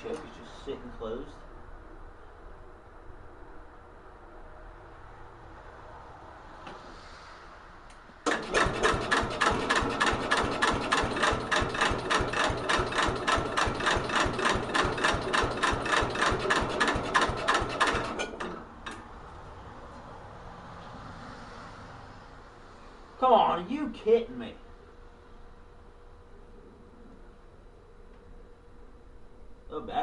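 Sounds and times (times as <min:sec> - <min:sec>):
starter cranking engine: 0:08.3 - 0:19.0.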